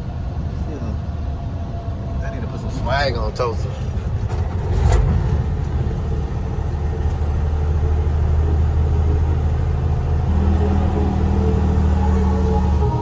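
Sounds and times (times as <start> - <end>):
truck diesel engine droning: 1.6 - 13.0
low tone: 5.4 - 13.0.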